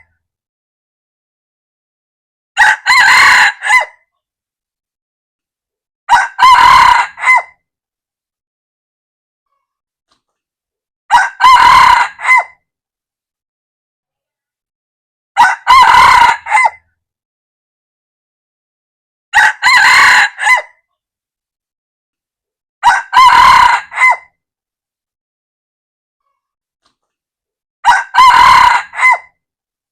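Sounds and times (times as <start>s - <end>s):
rooster crowing: 2.6s - 4.0s, 6.1s - 7.5s, 11.1s - 12.6s, 15.4s - 16.8s, 19.3s - 20.7s, 22.8s - 24.3s, 27.8s - 29.4s.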